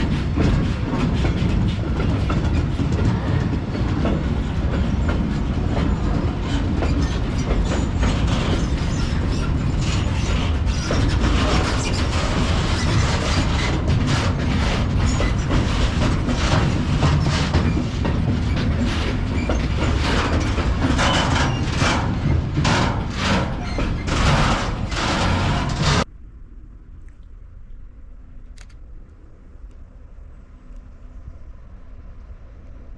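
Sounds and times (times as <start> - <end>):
freight wagons rumbling: 0.0 - 26.1
wheels clacking over rail joints: 0.0 - 26.1.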